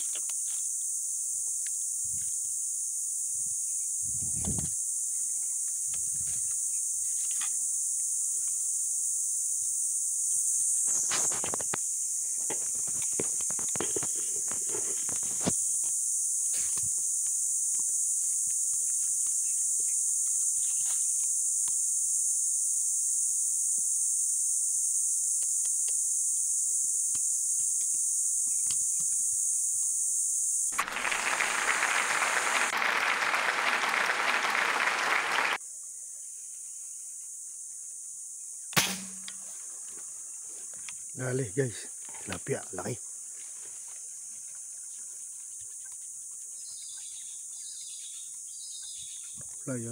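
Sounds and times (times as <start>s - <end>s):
insects buzzing: 0.0s - 49.9s
sharp knock: 38.8s - 39.5s.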